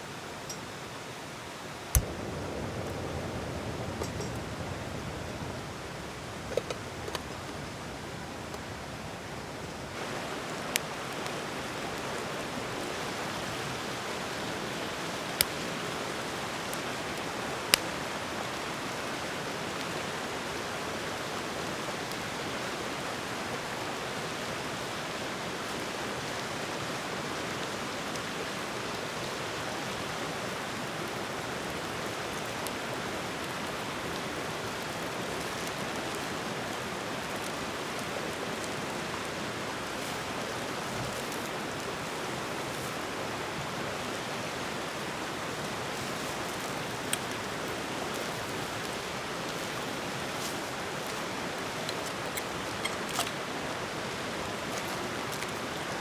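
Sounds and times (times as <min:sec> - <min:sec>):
campfire hissing: 0:00.0 - 0:56.0
fire popping: 0:01.6 - 0:05.4, 0:10.0 - 0:18.6, 0:30.8 - 0:56.0.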